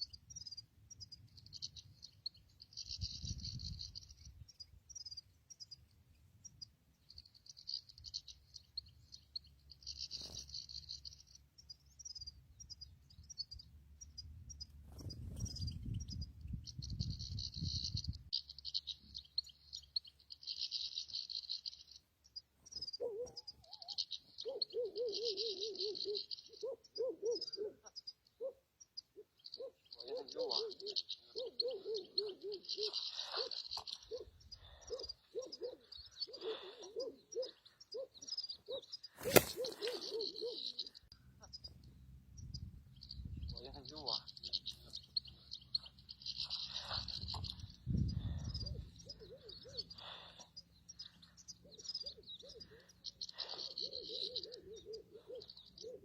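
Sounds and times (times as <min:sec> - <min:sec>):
birds twittering: 0:00.0 - 0:56.0
sharp crack: 0:39.2 - 0:39.8.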